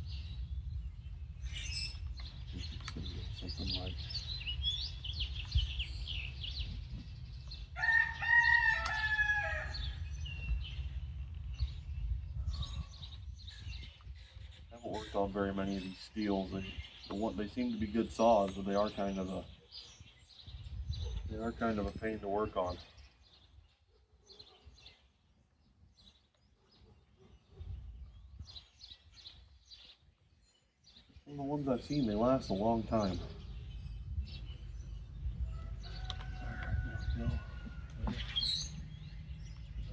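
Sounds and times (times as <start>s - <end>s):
small birds chirping: 0.0s - 39.9s
rooster crowing: 7.8s - 10.0s, 35.5s - 38.1s
low rumble: 33.4s - 39.9s.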